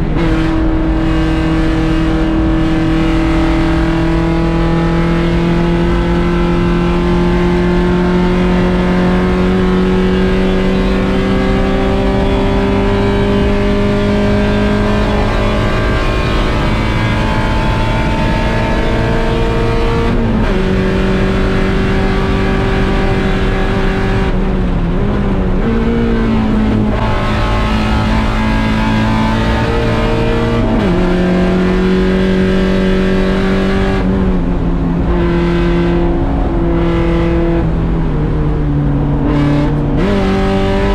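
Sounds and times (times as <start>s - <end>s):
race car engine revving: 0.0s - 40.9s
road and wind noise: 0.0s - 40.9s.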